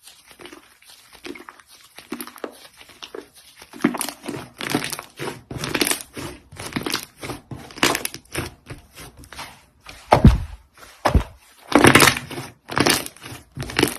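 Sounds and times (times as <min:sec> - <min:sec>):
slime crackling and squelching: 0:00.0 - 0:13.9
deep thuds: 0:10.1 - 0:11.4.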